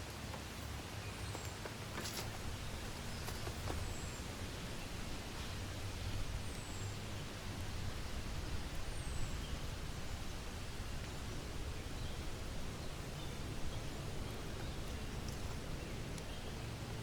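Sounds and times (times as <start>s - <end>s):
steady rain falling: 0.0s - 17.0s
light ticks: 14.5s - 16.4s.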